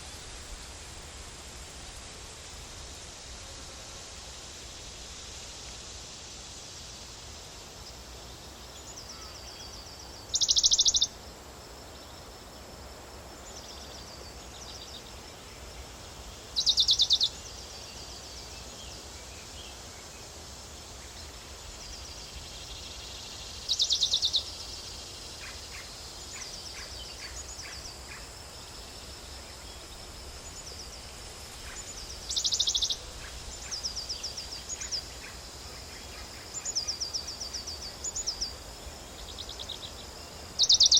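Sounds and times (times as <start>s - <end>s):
steady outdoor hiss: 0.0s - 40.9s
soft high bird chirping: 9.0s - 11.1s, 29.4s - 38.6s, 40.6s - 40.9s
high rapid bird trills: 29.7s - 38.6s.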